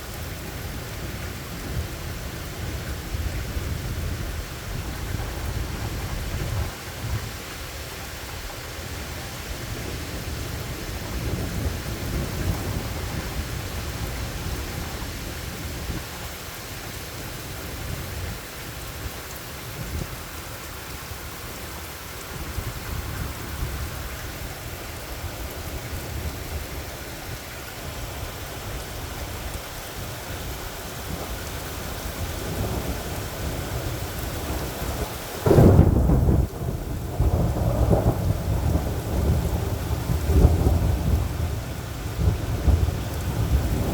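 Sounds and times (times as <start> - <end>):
steady rain falling: 0.0 - 43.9
low rolling thunder: 0.6 - 7.6, 9.6 - 16.1, 30.3 - 43.9.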